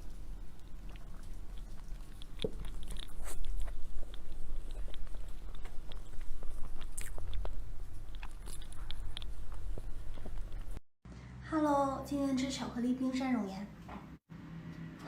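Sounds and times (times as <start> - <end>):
person chewing dessert: 0.0 - 10.8.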